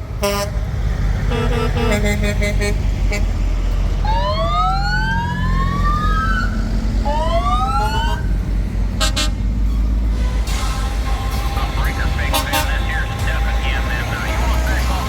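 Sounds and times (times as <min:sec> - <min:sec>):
truck engines rumbling: 0:00.0 - 0:15.0
horn blasts: 0:00.1 - 0:03.6, 0:09.0 - 0:15.0
emergency siren wailing: 0:01.2 - 0:09.4, 0:10.1 - 0:15.0.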